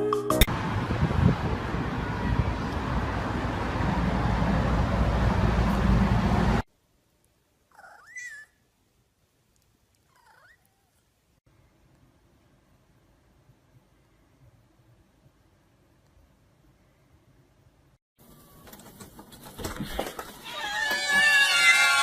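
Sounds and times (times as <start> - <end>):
cat meowing: 10.1 - 11.0, 20.4 - 22.0.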